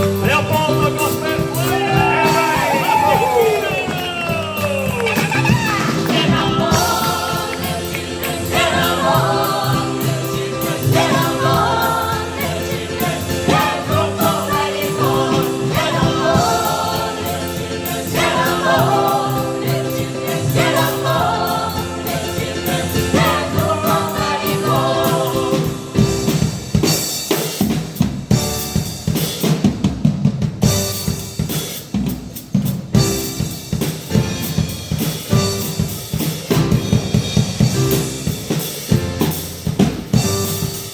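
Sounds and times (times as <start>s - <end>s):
gospel choir singing with band: 0.0s - 28.4s
drum kit steady beat: 0.0s - 40.9s.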